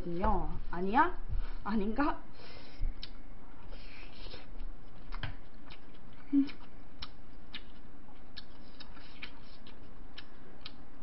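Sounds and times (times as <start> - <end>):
mouth clicks and smacks: 2.8 - 3.2, 4.0 - 10.8
chewing rice: 2.9 - 11.0.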